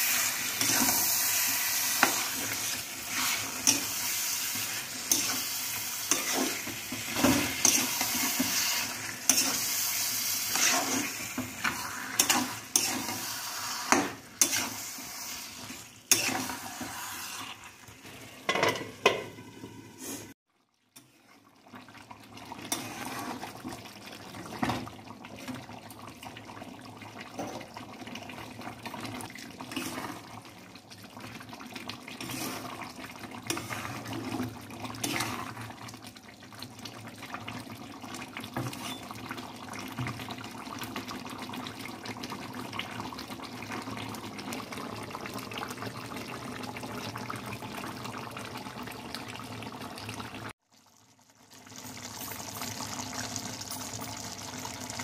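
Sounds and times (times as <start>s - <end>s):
meat frying in oil: 0.0s - 19.3s, 20.7s - 55.0s
spatula scraping and knocking pan: 1.8s - 9.7s, 13.9s - 14.8s.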